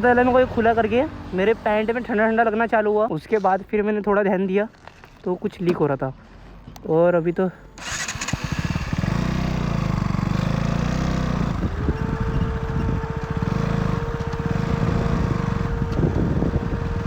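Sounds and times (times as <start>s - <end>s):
motorcycle engine idling: 7.8s - 17.0s
cooling fan whine: 11.0s - 17.0s.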